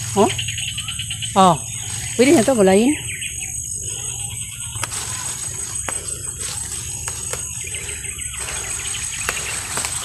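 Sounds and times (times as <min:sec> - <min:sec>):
insects chirring: 0:00.0 - 0:10.0
plant stems snapping: 0:04.7 - 0:07.8, 0:08.4 - 0:10.0.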